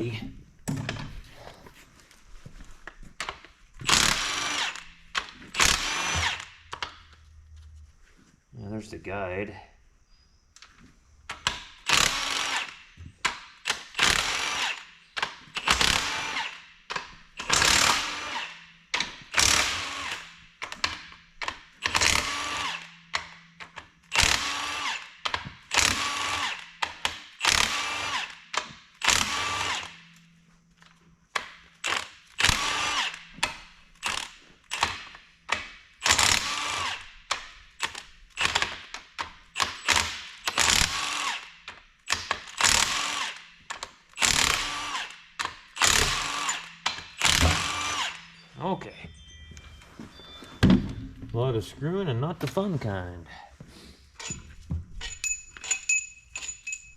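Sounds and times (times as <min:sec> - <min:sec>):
impact wrench hammering: 0:44.2 - 0:48.4.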